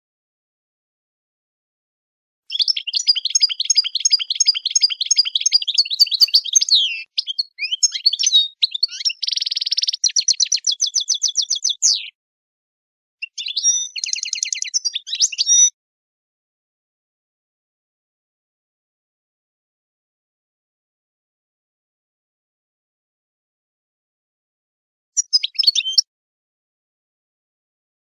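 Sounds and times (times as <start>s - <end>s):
songbird chirping and trilling: 2.5s - 12.2s, 13.2s - 15.8s, 25.2s - 26.1s.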